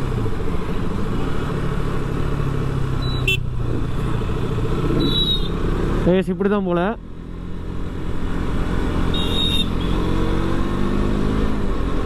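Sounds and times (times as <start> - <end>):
road and traffic noise: 0.0 - 12.0
motorcycle engine running: 7.0 - 10.5.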